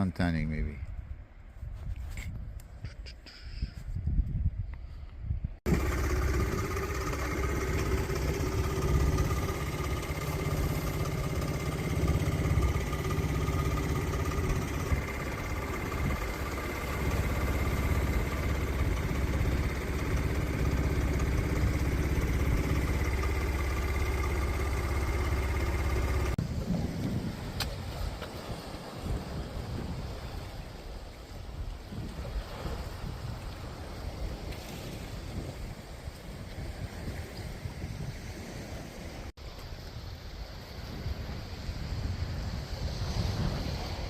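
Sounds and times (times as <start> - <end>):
motorcycle engine running: 5.7 - 26.4.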